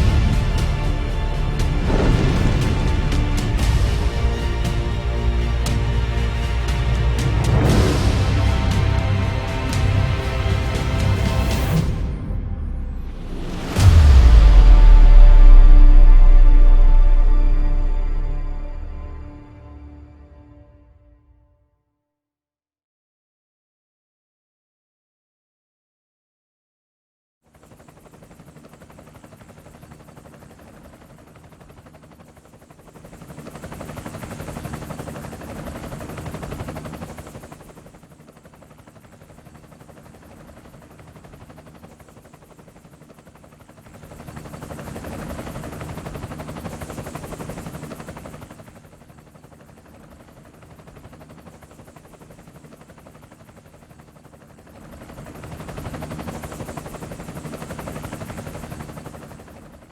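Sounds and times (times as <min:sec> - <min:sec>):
cinematic rumbling with low hum: 0:00.0 - 0:20.3.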